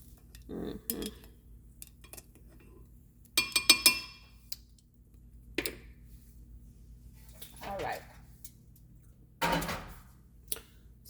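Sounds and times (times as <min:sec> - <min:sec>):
kitchenware clinking: 0:03.4 - 0:04.4, 0:09.4 - 0:10.0.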